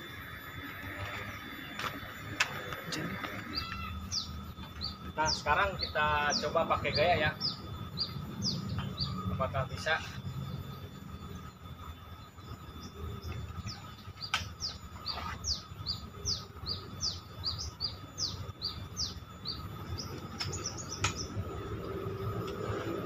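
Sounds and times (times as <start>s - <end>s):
bird chirping: 0.0s - 23.0s
outdoor background rumble: 0.0s - 23.0s
sharp clicks: 14.2s - 14.6s, 20.3s - 21.3s.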